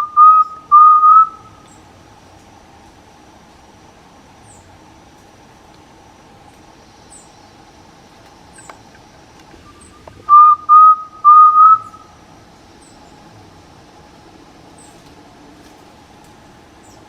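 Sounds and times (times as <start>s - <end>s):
bird whistling call: 0.0s - 1.8s, 9.5s - 12.1s
faint high chirps: 9.5s - 12.2s.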